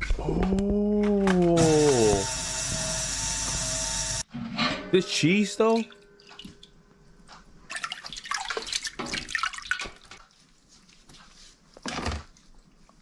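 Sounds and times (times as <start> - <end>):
liquid dripping and splashing: 5.8 - 10.3.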